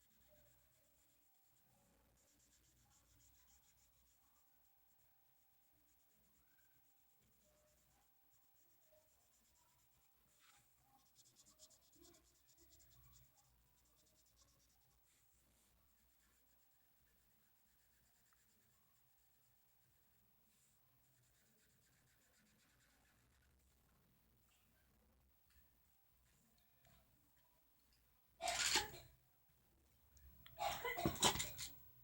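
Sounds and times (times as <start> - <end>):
pen scratching on paper: 0.0 - 23.9.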